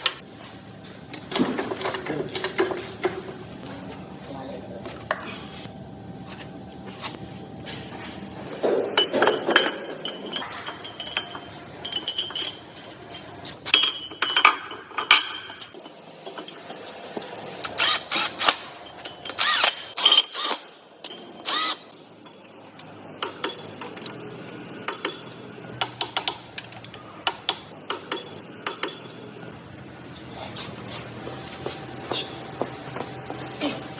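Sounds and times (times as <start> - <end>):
metal tools clinking and knocking: 1.1 - 3.4, 8.5 - 29.1.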